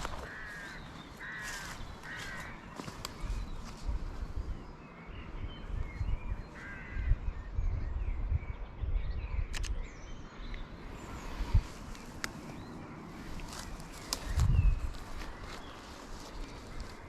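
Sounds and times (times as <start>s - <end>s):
crows cawing: 0.0s - 3.1s, 6.5s - 7.2s
small birds chirping: 0.0s - 17.0s
sharp clicks: 9.5s - 9.8s.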